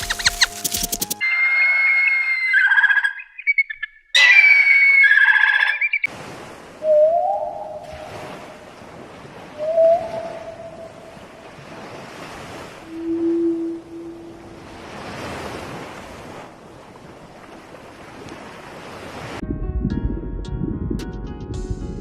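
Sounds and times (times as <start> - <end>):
high-pitched whistled animal calls: 0.0 - 6.0, 9.5 - 11.0
surf or wind wash: 6.1 - 19.4.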